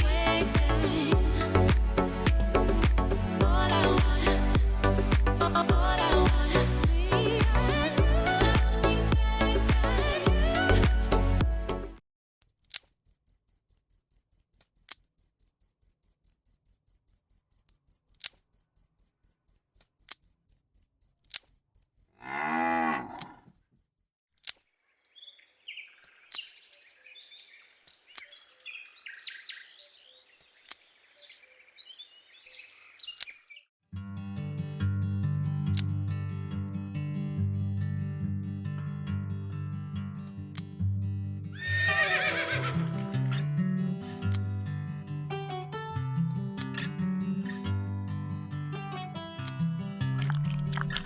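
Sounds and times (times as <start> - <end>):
crickets chirping: 12.4 - 24.1
cow mooing: 22.2 - 23.4
small birds twittering: 25.0 - 33.7.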